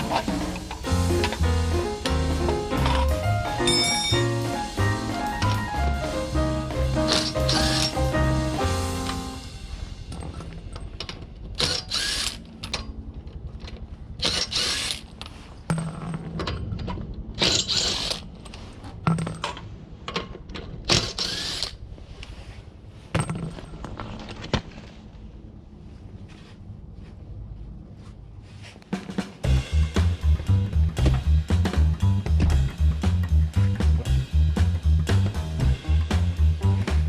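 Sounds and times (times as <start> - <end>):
ratchet wrench clicking: 7.1 - 8.0, 11.6 - 12.8, 14.2 - 15.0.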